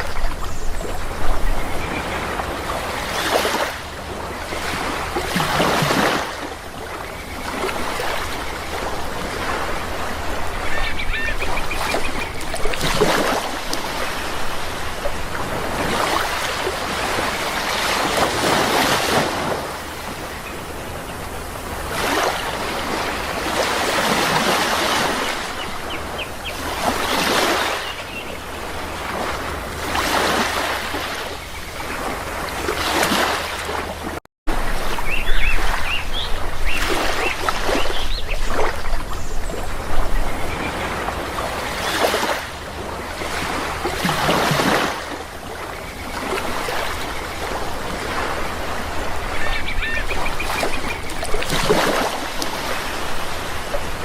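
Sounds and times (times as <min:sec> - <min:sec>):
sea waves washing in: 0:00.0 - 0:54.0
small birds chirping: 0:49.2 - 0:51.3.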